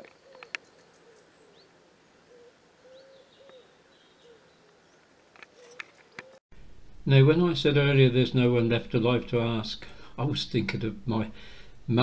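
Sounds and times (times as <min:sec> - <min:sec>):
pigeon cooing: 0:00.0 - 0:04.9
small birds chirping: 0:00.0 - 0:06.4.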